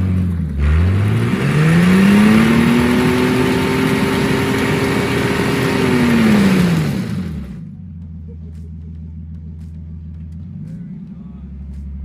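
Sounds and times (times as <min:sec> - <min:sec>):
spinning tyre hissing: 0:00.0 - 0:07.6
car engine revving high: 0:00.0 - 0:07.7.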